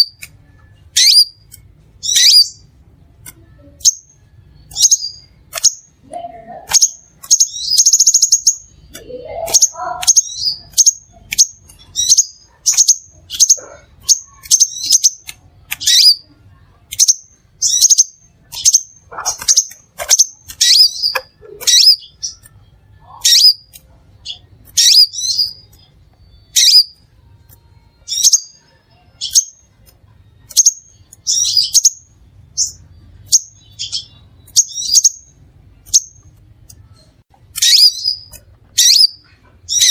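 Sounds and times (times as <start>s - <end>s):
bird sharp high chips: 6.6s - 16.3s, 16.9s - 25.9s, 37.5s - 39.9s.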